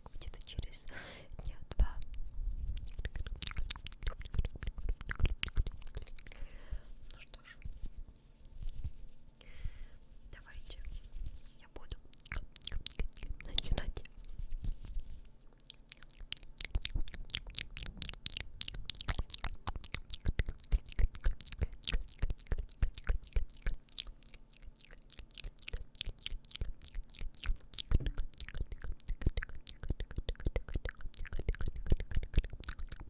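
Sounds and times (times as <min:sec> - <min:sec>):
wet mouth clicks and smacks: 0:01.4 - 0:07.7, 0:11.6 - 0:14.2, 0:14.9 - 0:33.0.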